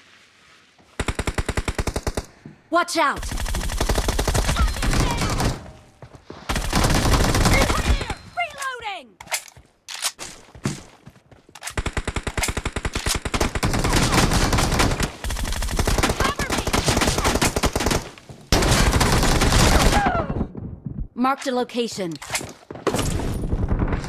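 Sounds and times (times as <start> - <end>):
video game automatic gunfire: 3.2 - 5.6, 6.5 - 8.0, 11.8 - 20.0.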